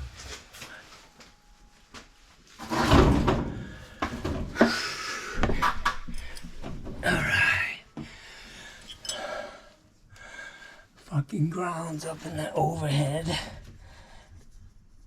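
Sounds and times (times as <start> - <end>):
tools clattering and knocking: 2.6 - 4.8.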